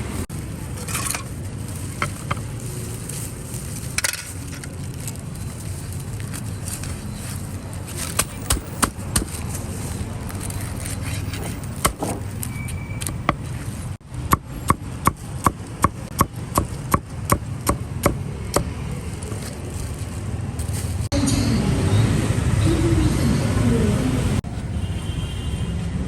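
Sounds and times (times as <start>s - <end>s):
cleaver chopping on wood: 8.1s - 9.4s, 11.4s - 12.4s, 14.2s - 18.8s.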